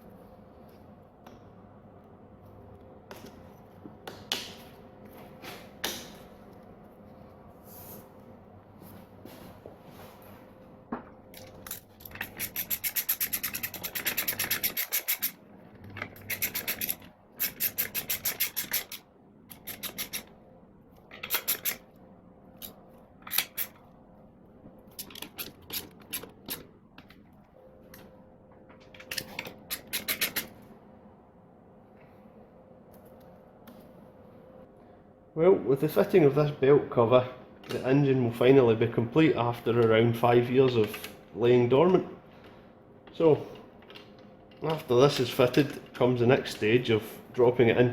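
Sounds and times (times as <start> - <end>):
socket ratchet clicking: 11.4 - 15.4, 16.0 - 20.3, 21.1 - 21.8, 22.6 - 23.8, 24.9 - 26.6, 29.0 - 30.5.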